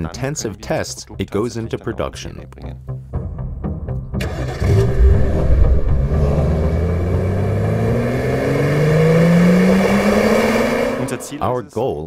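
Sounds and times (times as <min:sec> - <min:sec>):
car engine accelerating: 0:04.2 - 0:11.5.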